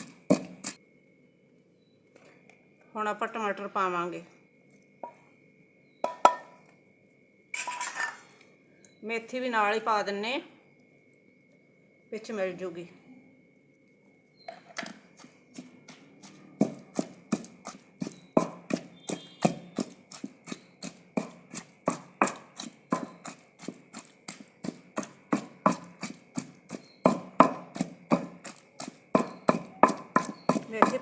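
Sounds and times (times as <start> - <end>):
pounding in a mortar: 0.0 - 0.8, 6.0 - 6.6, 14.7 - 31.0.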